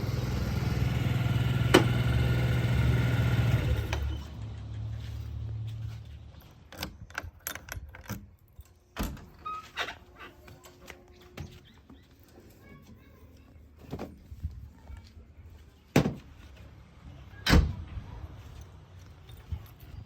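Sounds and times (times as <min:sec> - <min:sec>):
diesel engine running: 0:00.0 - 0:06.4.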